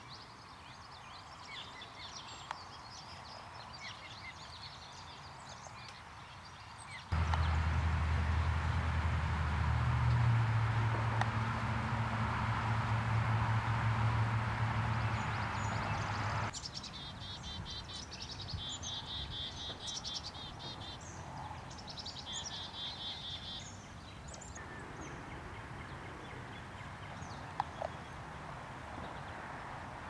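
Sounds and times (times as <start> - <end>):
songbird chirping: 0.0 - 28.4
steady low hum: 7.2 - 16.5.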